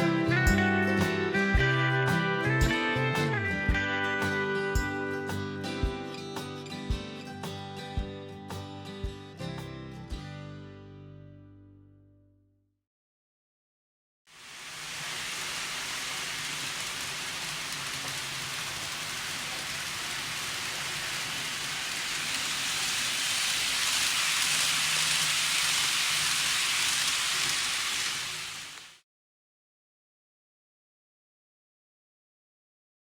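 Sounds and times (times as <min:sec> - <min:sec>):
model train wheels and motor: 0:14.4 - 0:29.0.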